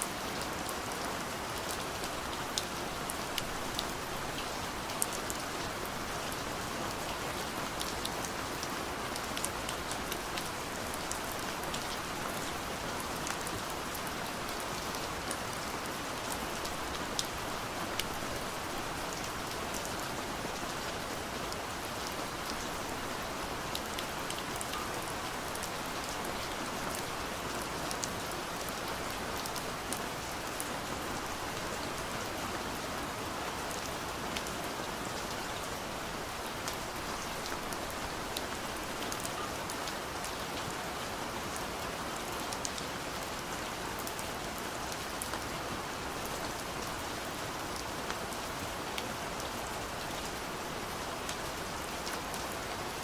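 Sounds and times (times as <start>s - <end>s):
rain on a window pane: 0.0s - 53.0s.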